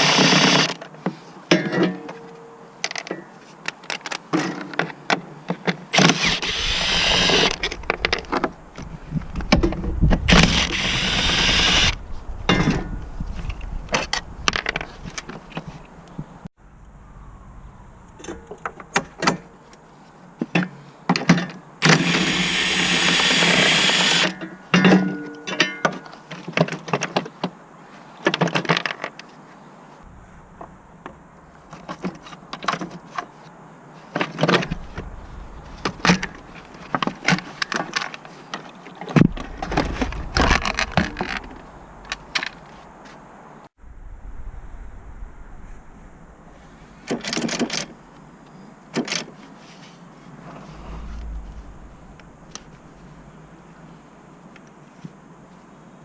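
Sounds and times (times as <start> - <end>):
metal tools clanking on car parts: 1.5 - 3.4, 18.2 - 19.6, 24.4 - 26.9
loud continuous burst: 6.0 - 12.1.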